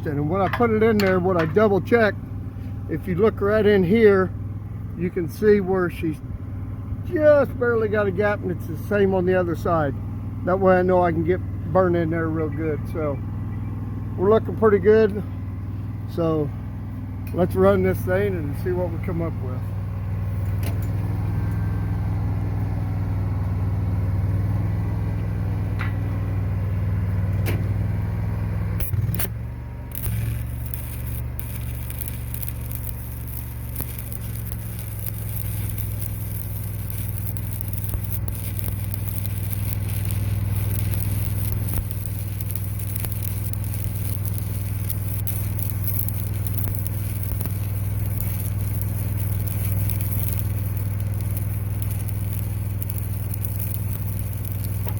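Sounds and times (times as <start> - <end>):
engine drone: 0.0 - 54.9
welding arc crackling: 28.0 - 54.9
sharp clicks: 28.8 - 54.9.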